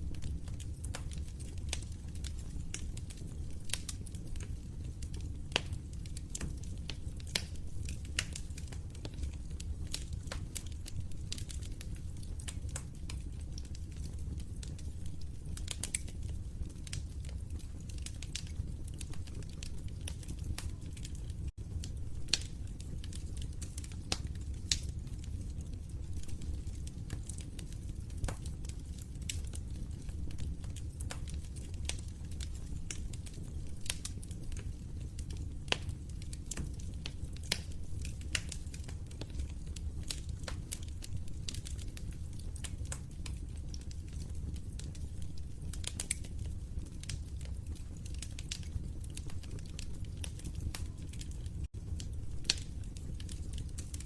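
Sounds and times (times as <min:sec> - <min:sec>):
low rumble of burning: 0:00.0 - 0:54.0
wood fire crackling: 0:00.0 - 0:54.0.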